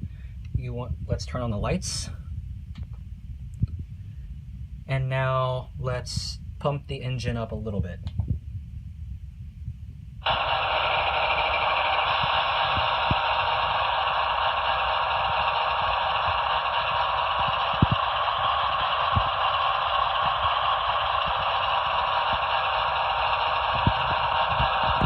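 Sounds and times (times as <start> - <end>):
diesel engine sound from small speaker: 10.2 - 25.0.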